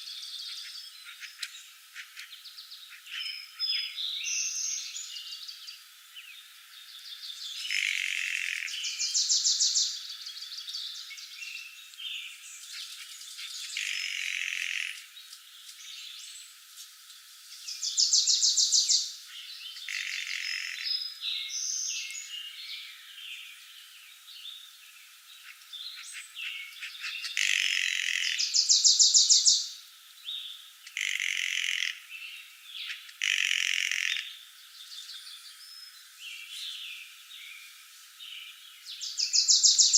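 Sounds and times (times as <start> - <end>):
birds singing and calling: 0.0 - 16.6, 17.5 - 39.9
loud rapid bird trill: 7.1 - 15.2, 17.7 - 22.5, 25.4 - 29.8, 30.9 - 34.6, 39.0 - 39.9.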